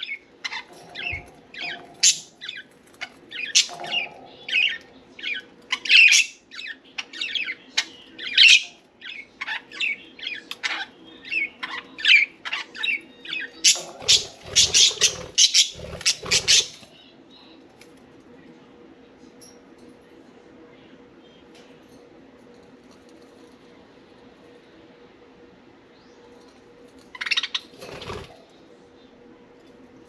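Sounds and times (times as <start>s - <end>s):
budgerigars chirping and chattering: 0.0s - 16.9s, 27.1s - 28.4s
faint steady hum: 0.0s - 30.0s.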